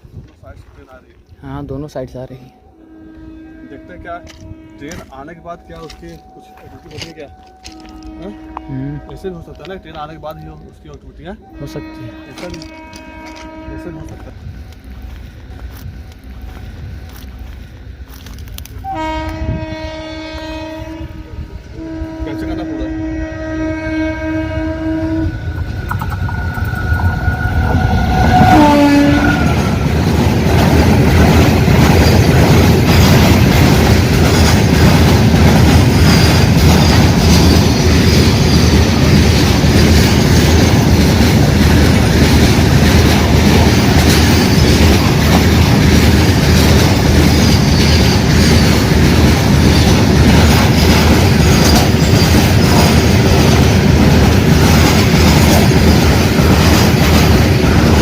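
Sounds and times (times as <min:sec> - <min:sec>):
train passing rumble: 0:00.0 - 0:58.0
train horn: 0:02.6 - 0:10.3, 0:11.3 - 0:14.5, 0:18.8 - 0:30.0
wheels clattering on rails: 0:25.5 - 0:58.0.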